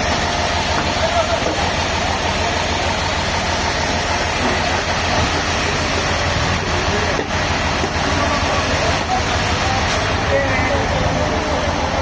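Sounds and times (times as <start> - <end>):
heavy machinery engine hum: 0.0 - 12.0.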